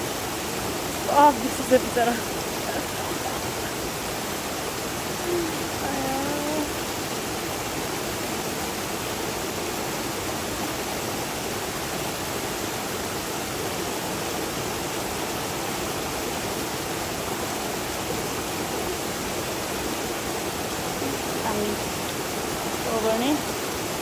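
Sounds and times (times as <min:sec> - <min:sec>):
water cascading over small falls: 0:00.0 - 0:24.0.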